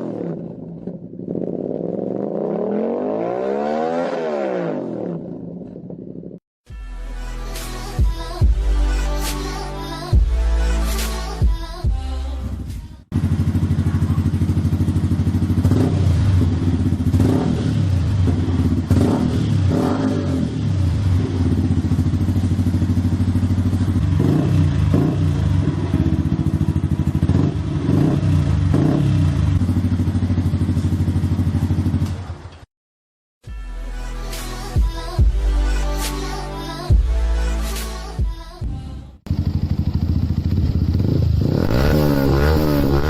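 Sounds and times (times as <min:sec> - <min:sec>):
motorcycle engine idling and revving: 0:00.0 - 0:06.4, 0:10.1 - 0:32.7, 0:38.1 - 0:43.0.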